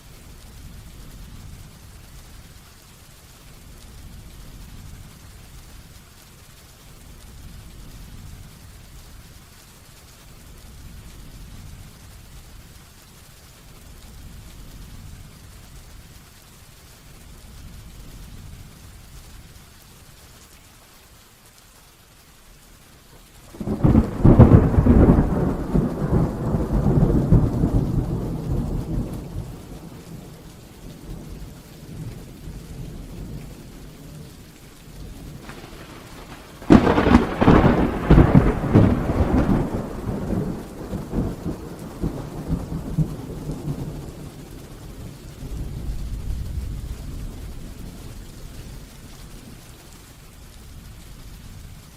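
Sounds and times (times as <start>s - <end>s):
heavy rain falling: 0.0s - 51.9s
thunder rumbling: 23.5s - 49.6s.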